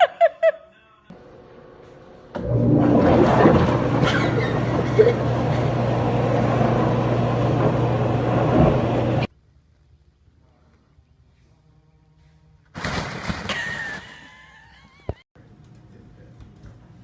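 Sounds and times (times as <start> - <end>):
machine humming: 1.2 - 9.3.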